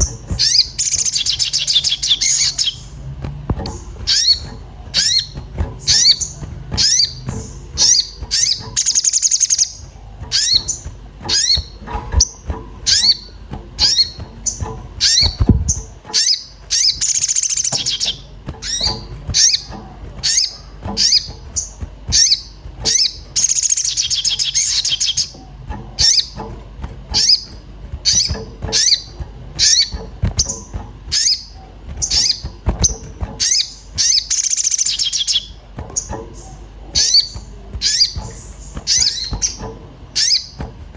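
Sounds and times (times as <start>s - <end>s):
bird chirping and trilling: 0.0s - 40.8s.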